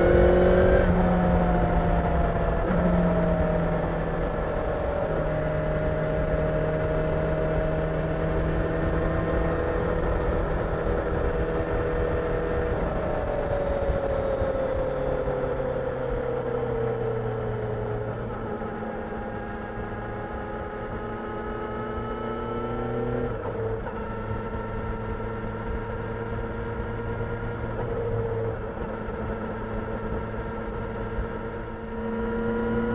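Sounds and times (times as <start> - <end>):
motorcycle engine running: 0.0 - 16.4
wind and road noise: 0.0 - 32.9.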